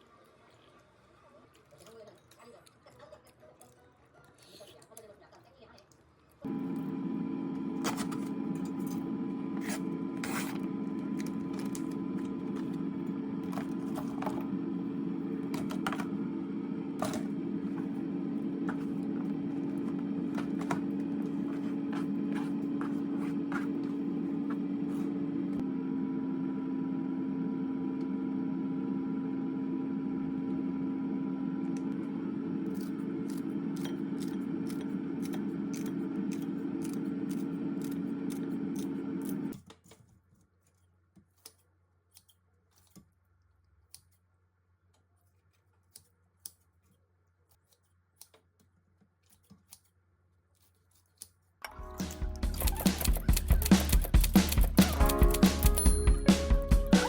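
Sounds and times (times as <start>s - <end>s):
machine hum: 6.4s - 39.6s
clicks and scrapes of handling: 39.2s - 43.2s, 44.9s - 51.5s.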